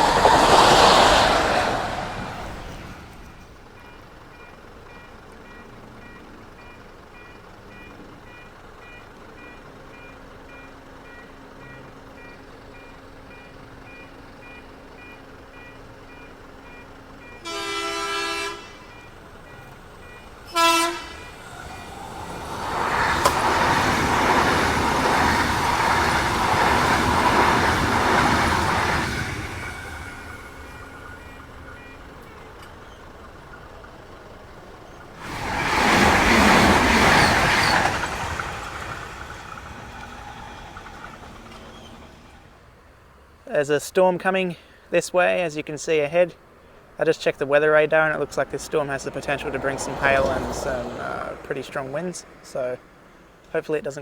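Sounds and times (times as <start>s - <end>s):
train rushing past: 0.0s - 3.6s, 17.2s - 42.6s, 47.7s - 53.1s
train horn: 17.4s - 19.1s, 20.5s - 21.9s
level crossing bells ringing: 47.4s - 52.9s.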